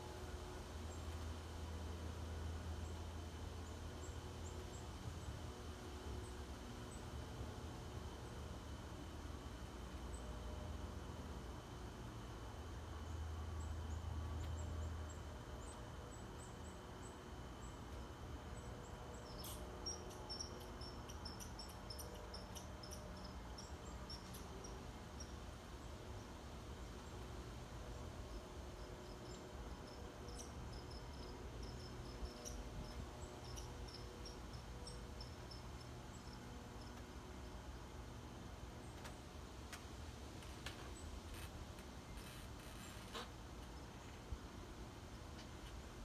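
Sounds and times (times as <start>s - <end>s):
small birds chirping: 18.5s - 26.0s.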